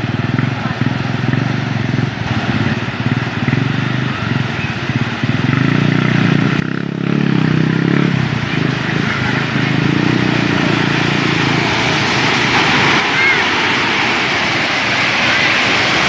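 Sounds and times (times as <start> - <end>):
engine running: 0.0 - 16.0
rushing hiss: 7.4 - 16.0.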